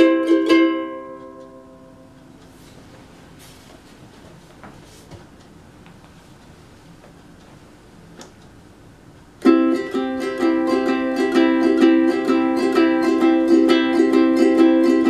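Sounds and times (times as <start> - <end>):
ukulele strumming chords: 0.0 - 2.8, 9.4 - 15.0.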